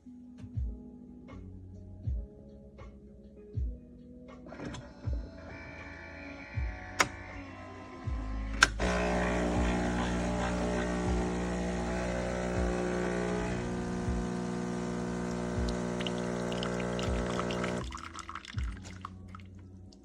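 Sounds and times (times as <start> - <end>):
espresso machine pump humming: 8.8 - 18.0.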